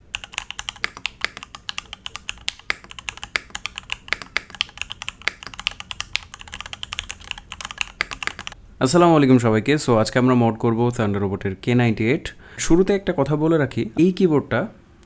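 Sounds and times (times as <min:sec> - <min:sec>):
fast mechanical keyboard typing: 0:00.0 - 0:08.6.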